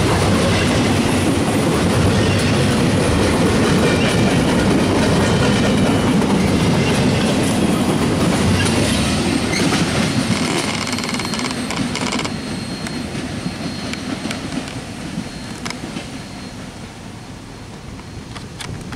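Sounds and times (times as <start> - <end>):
train wheels rumbling on rails: 0.0 - 18.9
clicks over rail joints: 9.6 - 12.3
thin high squeal: 9.6 - 16.8.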